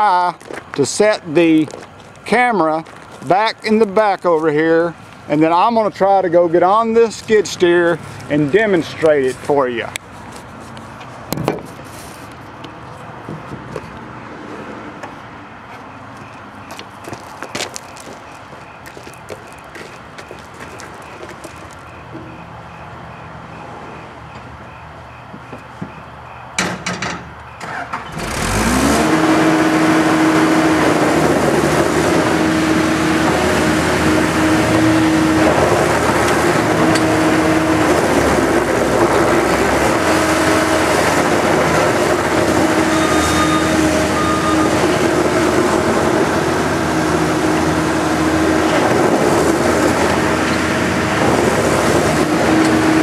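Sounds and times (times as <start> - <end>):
diesel engine running: 27.4 - 53.0.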